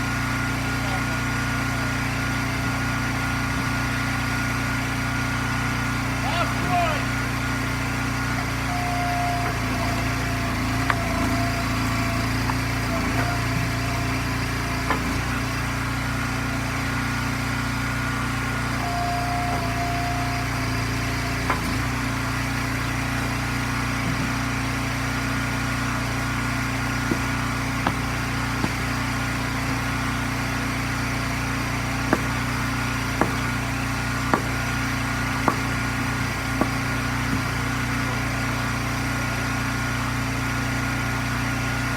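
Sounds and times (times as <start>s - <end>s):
gas engine running: 0.0s - 41.9s
hydraulic whine: 0.0s - 41.9s
wood splitting knocks: 9.4s - 16.0s, 18.9s - 24.8s, 25.8s - 38.0s
wood pieces landing: 26.9s - 29.8s, 32.0s - 37.8s.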